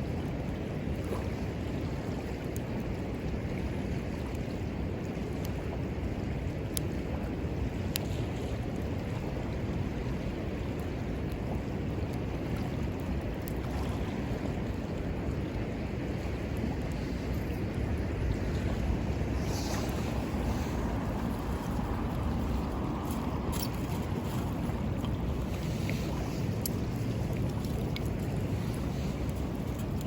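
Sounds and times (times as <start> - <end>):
river water rushing: 13.2 - 30.0.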